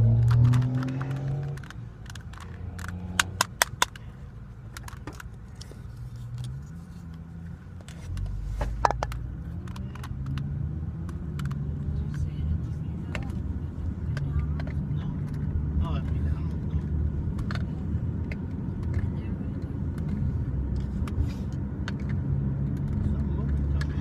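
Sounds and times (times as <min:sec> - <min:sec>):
vehicle engine passing: 0:00.0 - 0:04.0
plastic puzzle cube clicking: 0:00.1 - 0:04.0, 0:09.0 - 0:11.7.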